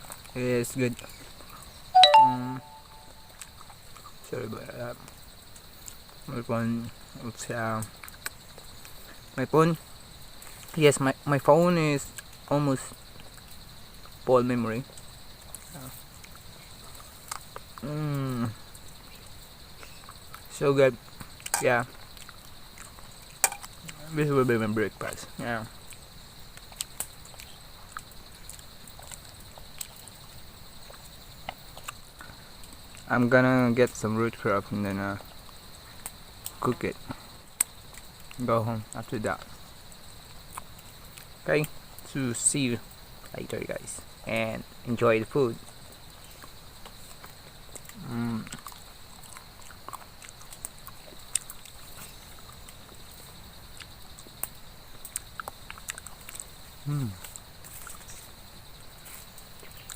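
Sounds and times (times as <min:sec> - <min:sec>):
insects droning: 0:00.0 - 0:59.9
faint high-pitched hum: 0:01.9 - 0:03.4
eating clicks and smacks: 0:07.8 - 0:09.0, 0:14.8 - 0:20.5, 0:25.8 - 0:33.1, 0:35.2 - 0:42.1, 0:45.6 - 0:58.4.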